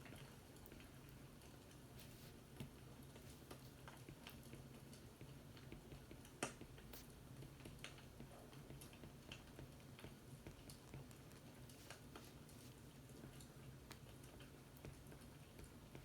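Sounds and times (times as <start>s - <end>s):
fireplace crackling: 0.2s - 5.7s.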